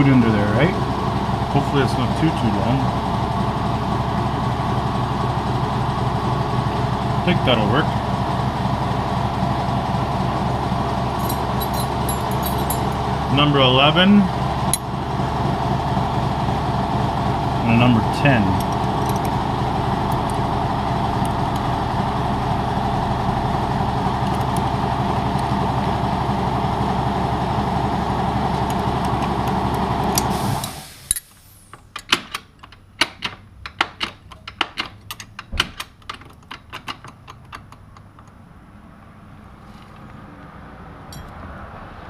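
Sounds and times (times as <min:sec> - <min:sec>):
air compressor running: 0:00.0 - 0:31.9
metallic clinks of hand tools: 0:11.2 - 0:12.9.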